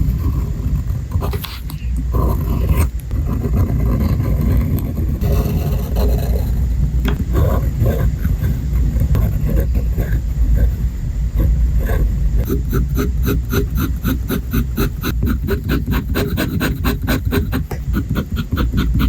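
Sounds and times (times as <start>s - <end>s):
pen nib scratching paper: 0.0s - 10.8s, 11.4s - 19.0s
low rumble of paper handling: 0.0s - 12.5s.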